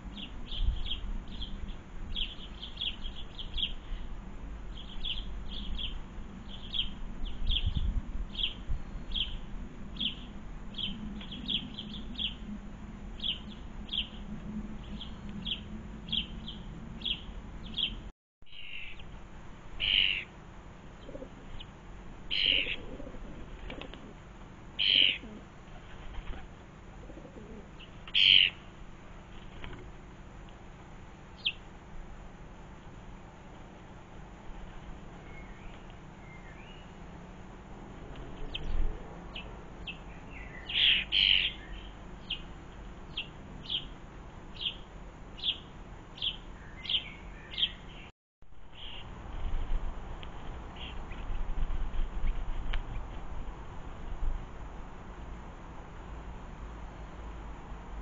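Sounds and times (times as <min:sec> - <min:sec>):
small birds chirping: 0:00.1 - 0:19.1, 0:19.8 - 0:20.3, 0:22.3 - 0:23.0, 0:24.8 - 0:26.6, 0:27.6 - 0:28.7, 0:31.3 - 0:31.7, 0:35.1 - 0:37.3, 0:38.2 - 0:48.1, 0:48.7 - 0:49.1, 0:50.7 - 0:53.1.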